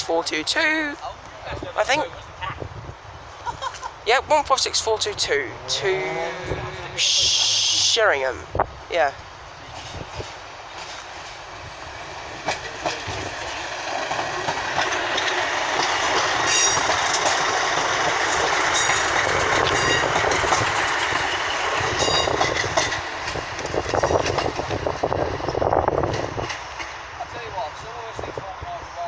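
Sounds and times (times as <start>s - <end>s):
train diesel engines: 0.0s - 29.0s
wheels clicking over rail joints: 9.2s - 27.4s.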